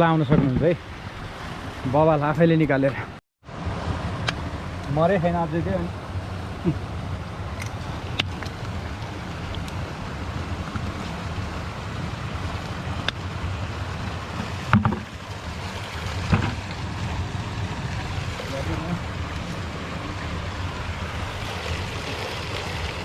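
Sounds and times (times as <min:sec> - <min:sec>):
flowing water rushing: 0:00.0 - 0:02.9, 0:03.5 - 0:23.0
sharp knocks: 0:14.7 - 0:15.1, 0:16.3 - 0:16.6.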